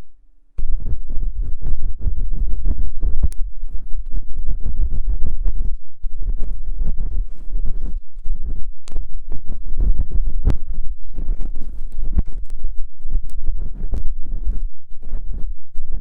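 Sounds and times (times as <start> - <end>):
low rumble: 0.0 - 16.0
tool scraping and tapping microphone: 0.6 - 16.0.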